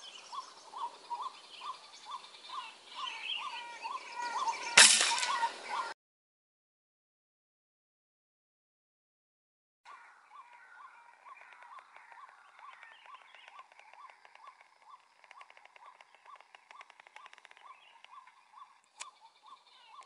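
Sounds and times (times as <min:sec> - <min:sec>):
fast rattling bird trill: 0:00.0 - 0:05.9, 0:10.0 - 0:20.0
bird chirping: 0:00.0 - 0:06.0, 0:09.9 - 0:20.0.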